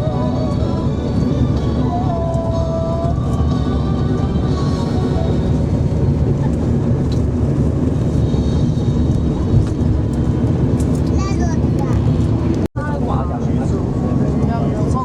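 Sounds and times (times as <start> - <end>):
vehicle rumbling in motion: 0.0 - 15.0.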